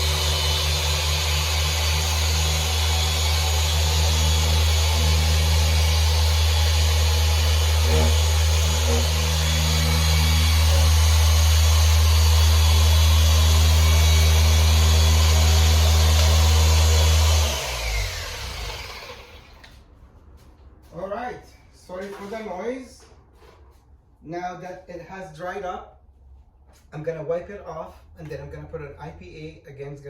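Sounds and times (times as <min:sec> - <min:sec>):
electric polisher running: 0:00.0 - 0:19.7.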